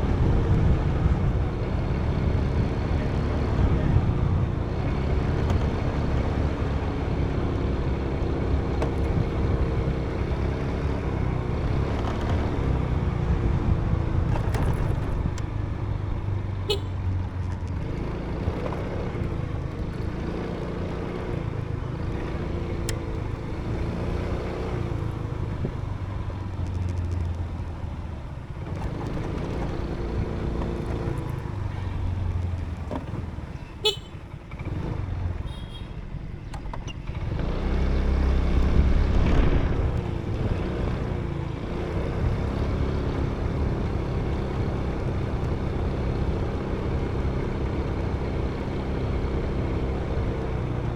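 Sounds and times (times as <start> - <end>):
motorbike engine running: 0.8 - 50.9
high-pitched horn toot: 16.7 - 17.0, 33.8 - 34.2.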